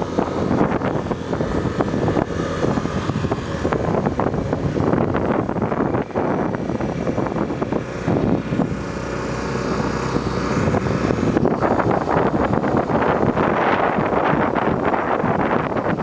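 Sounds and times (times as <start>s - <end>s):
motorcycle engine: 0.0s - 16.0s
road noise: 0.0s - 16.0s
wind buffeting microphone: 0.0s - 16.0s.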